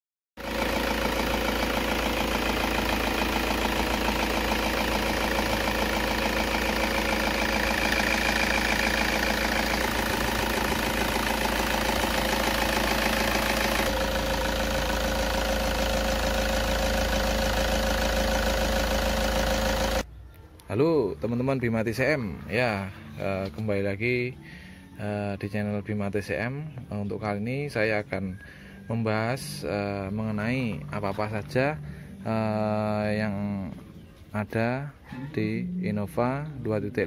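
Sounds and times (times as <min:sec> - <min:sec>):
diesel engine idling: 0:00.4 - 0:20.1, 0:27.7 - 0:34.8.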